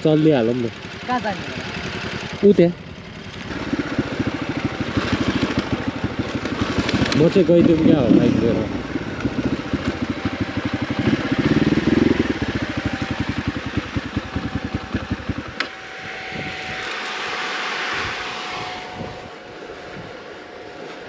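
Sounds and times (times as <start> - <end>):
motorcycle engine running: 0.0 - 21.0
engine cut-off click: 14.1 - 15.8
soft rushing noise: 14.4 - 21.0.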